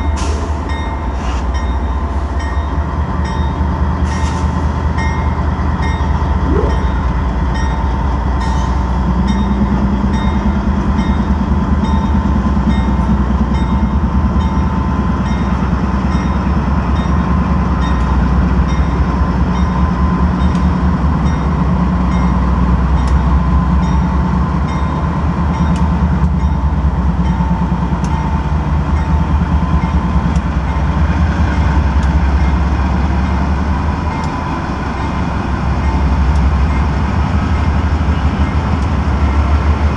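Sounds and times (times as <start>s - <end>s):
freight train rumbling: 0.0s - 39.9s
low hum: 6.3s - 8.3s.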